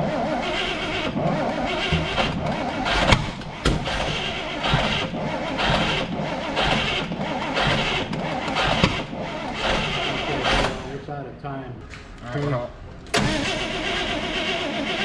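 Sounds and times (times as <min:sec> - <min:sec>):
engine running with rhythmic pulse: 0:00.0 - 0:10.9.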